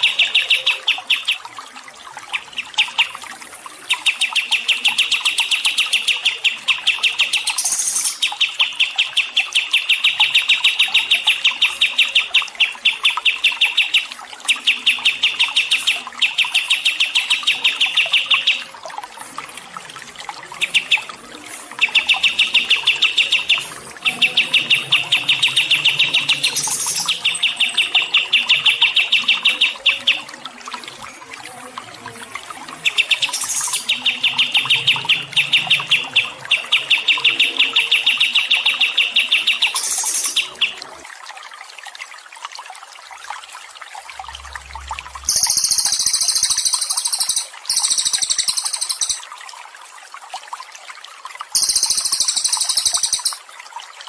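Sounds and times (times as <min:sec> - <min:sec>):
songbird chirping rapidly: 0:00.0 - 0:01.4, 0:03.9 - 0:18.7, 0:20.5 - 0:30.3, 0:32.8 - 0:40.8, 0:45.2 - 0:49.2, 0:51.6 - 0:53.4
faint water trickling: 0:00.0 - 0:54.0.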